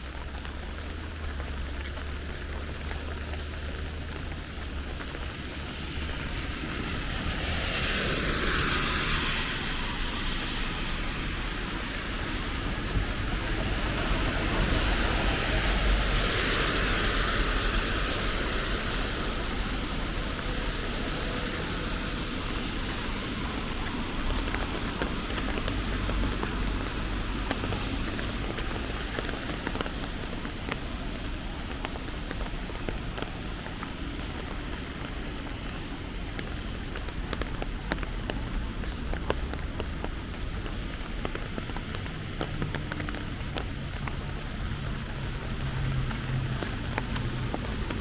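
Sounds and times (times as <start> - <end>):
rain hiss: 0.0 - 48.0.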